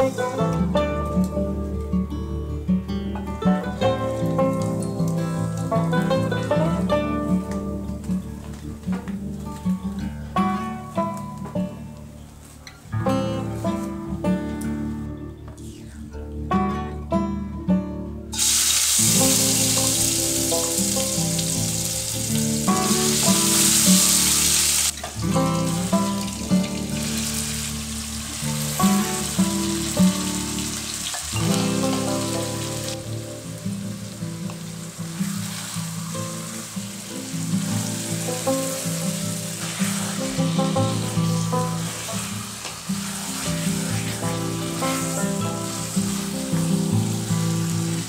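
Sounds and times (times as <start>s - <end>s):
plucked-string background music: 0.0s - 48.0s
chicken sizzling in hot oil: 18.4s - 48.0s.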